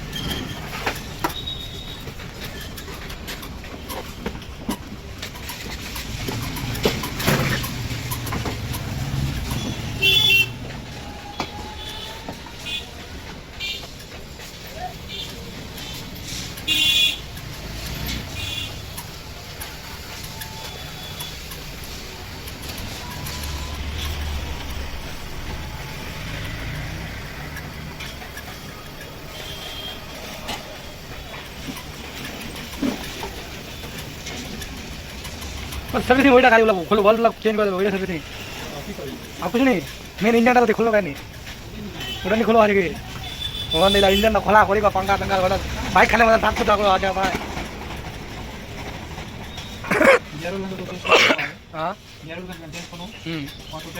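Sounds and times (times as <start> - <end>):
vehicle engine rumbling past: 6.0 - 11.2, 22.1 - 28.4
car horn beep: 9.5 - 10.6, 11.3 - 12.9, 16.7 - 17.2, 29.4 - 30.2, 43.2 - 44.4.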